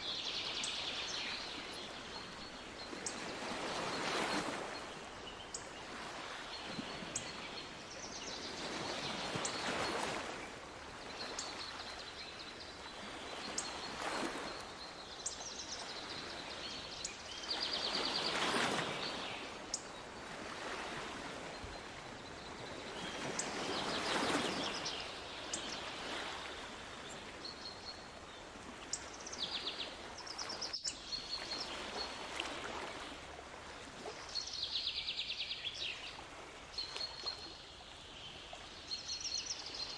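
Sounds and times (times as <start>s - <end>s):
small birds singing: 27.0s - 32.1s, 34.2s - 39.9s.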